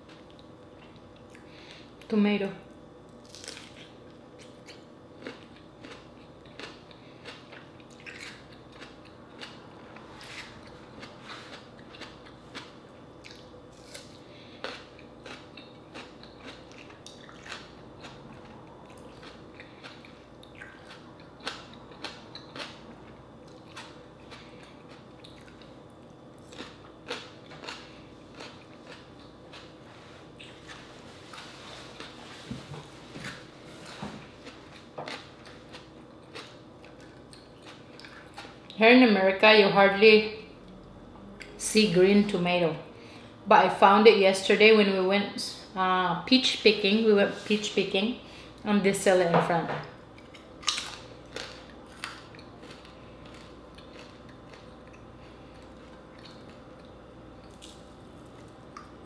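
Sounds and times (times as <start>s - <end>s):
person chewing and crunching: 0.0s - 2.1s, 3.1s - 32.5s, 33.2s - 38.8s, 50.0s - 59.0s.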